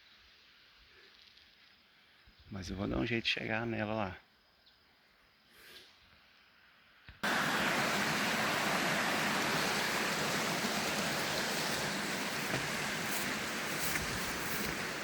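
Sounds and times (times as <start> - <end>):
waterfall rushing: 7.2 - 15.0.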